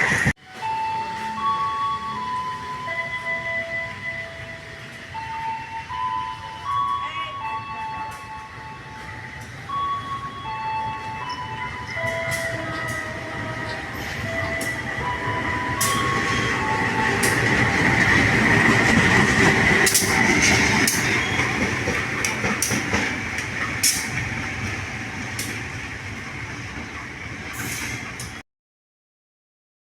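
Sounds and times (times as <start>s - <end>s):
passenger train passing: 0.0s - 28.4s
wheels clacking over rail joints: 10.6s - 28.4s
high wheel squeal: 19.9s - 21.8s.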